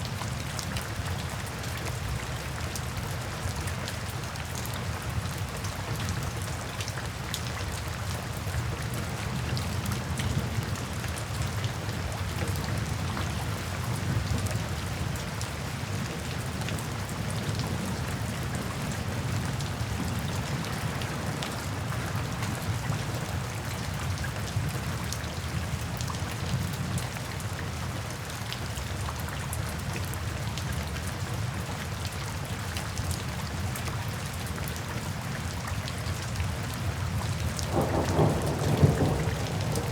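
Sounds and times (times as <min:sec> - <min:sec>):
rain drops ticking: 0:00.0 - 0:39.9
distant thunder rumble: 0:37.7 - 0:39.9.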